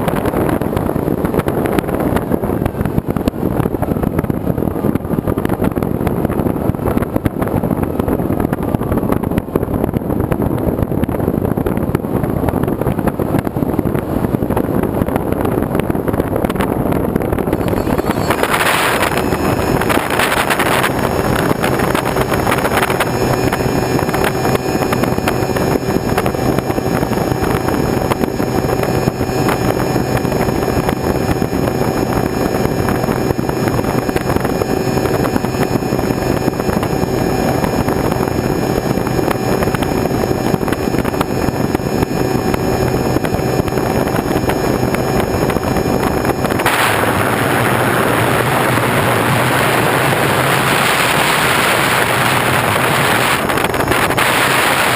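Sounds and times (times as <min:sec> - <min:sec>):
wind noise on microphone: 0:00.0 - 0:54.9
motor humming: 0:16.1 - 0:54.9.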